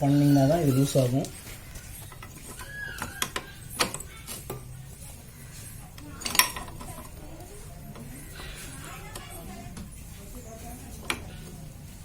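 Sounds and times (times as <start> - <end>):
wrenches clinking on metal parts: 6.0 - 7.2.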